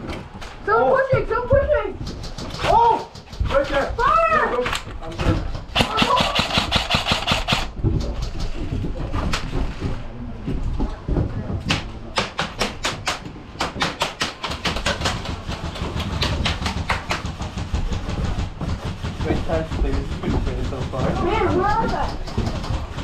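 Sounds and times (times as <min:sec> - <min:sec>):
airsoft gun bursts: 0:05.8 - 0:07.7.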